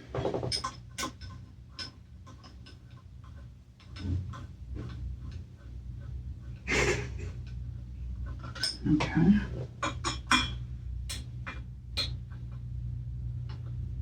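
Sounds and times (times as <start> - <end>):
rustling clatter: 0.0 - 6.6, 7.5 - 10.3
steady low hum: 0.0 - 14.0.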